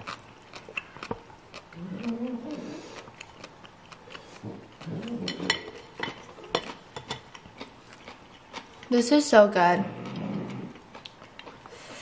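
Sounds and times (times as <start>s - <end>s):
chewing with mouth clicks: 0.0s - 12.0s
person humming mmm: 1.8s - 3.0s.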